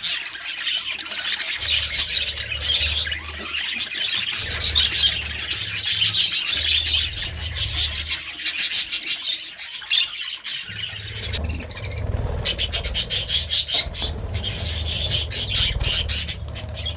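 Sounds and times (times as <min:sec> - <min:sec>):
budgerigars chattering: 0:00.0 - 0:16.9
low hum: 0:04.3 - 0:08.3, 0:10.7 - 0:16.9.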